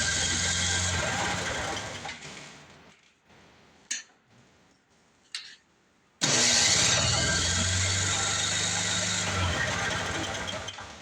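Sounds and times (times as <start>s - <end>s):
snowblower engine running: 0.0s - 2.1s, 6.2s - 11.0s
electric starter cranking engine: 0.0s - 2.2s, 6.2s - 11.0s.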